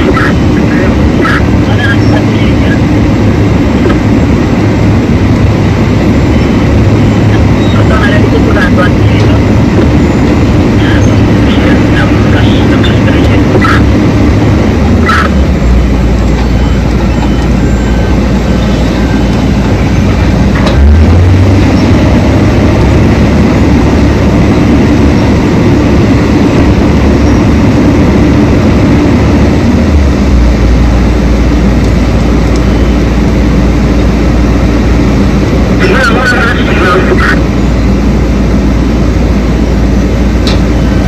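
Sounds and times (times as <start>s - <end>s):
heavy diesel machinery drone: 0.0s - 41.0s.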